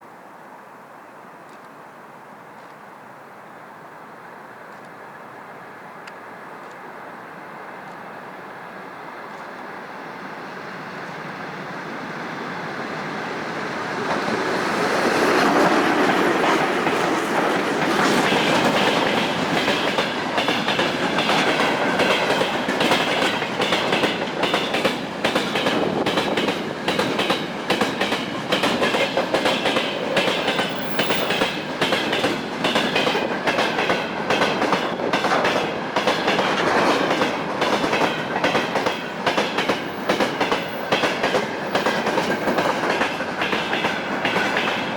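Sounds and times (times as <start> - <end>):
electric locomotive passing: 3.0 - 44.9
wheels clacking over rail joints: 12.7 - 44.9.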